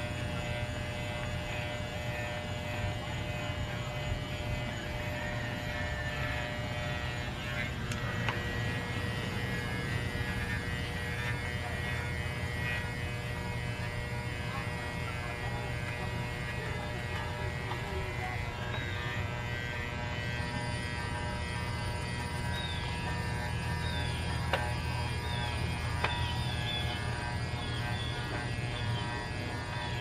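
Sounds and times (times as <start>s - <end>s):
electric clippers buzzing: 0.0s - 30.0s.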